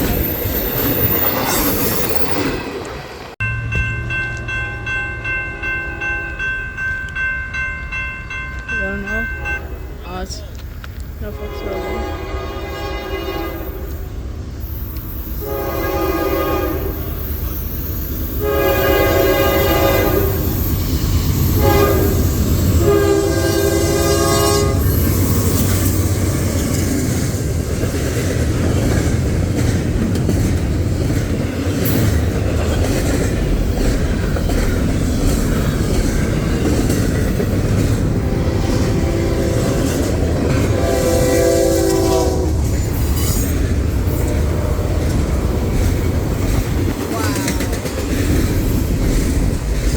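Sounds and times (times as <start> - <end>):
train wheels rumbling: 0.0 - 49.9
locomotive air horn blowing: 11.3 - 14.0, 15.3 - 17.3, 18.4 - 20.6, 21.4 - 25.2, 38.2 - 42.7.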